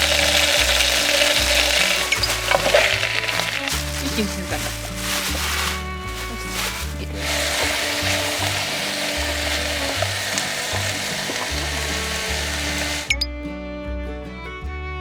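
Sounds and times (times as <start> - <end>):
food sizzling in a hot pan: 0.0 - 5.3, 6.6 - 13.1
background music: 0.0 - 15.0.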